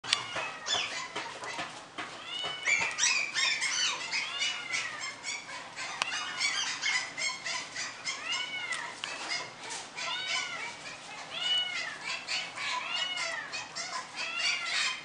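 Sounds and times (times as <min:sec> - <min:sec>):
young pets crying: 0:00.0 - 0:15.0.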